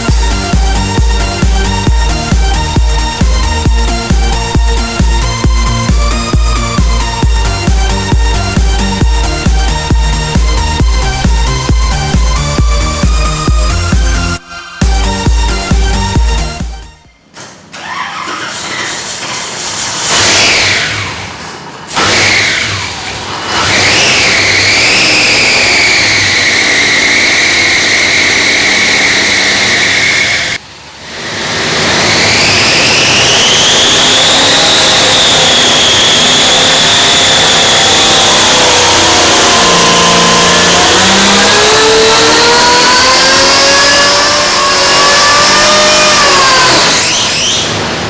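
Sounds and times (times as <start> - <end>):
small engine high-pitched whine: 0.0 - 17.0, 21.9 - 48.0.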